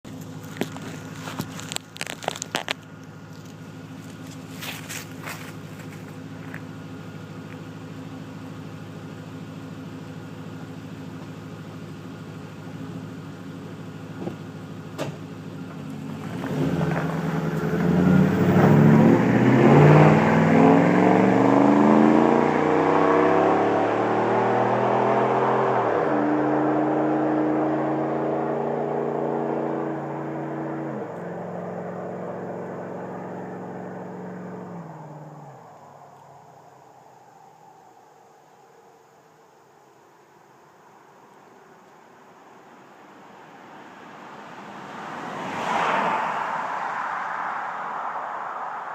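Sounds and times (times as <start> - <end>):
truck engine revving and shifting: 15.7 - 36.2, 44.6 - 48.9.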